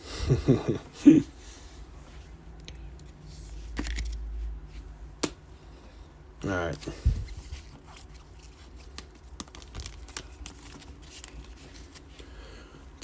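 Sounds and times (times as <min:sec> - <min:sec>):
trading cards clicking and rustling: 0:03.7 - 0:04.2, 0:06.5 - 0:12.3.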